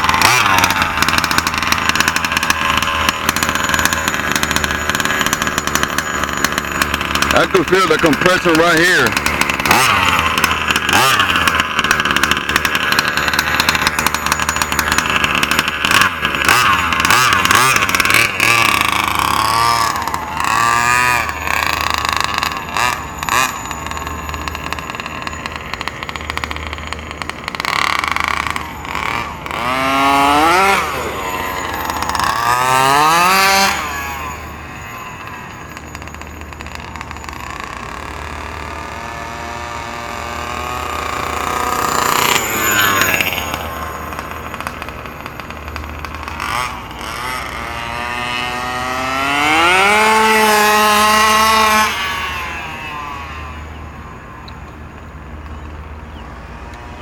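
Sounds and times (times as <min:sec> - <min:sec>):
small two-stroke engine revving: 0:00.0 - 0:57.0.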